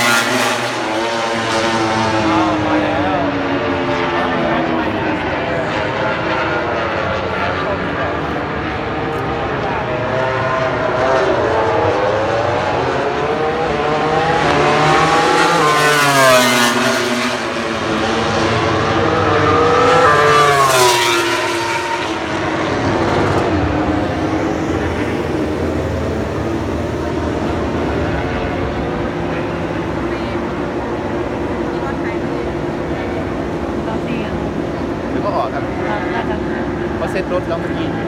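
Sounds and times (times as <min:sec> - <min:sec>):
race motorcycles accelerating past: 0:00.0 - 0:32.3.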